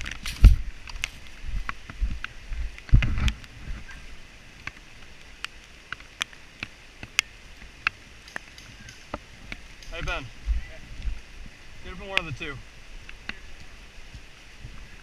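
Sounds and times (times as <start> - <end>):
footsteps through dry leaves: 0.0 - 2.2
twigs snapping: 4.6 - 10.2.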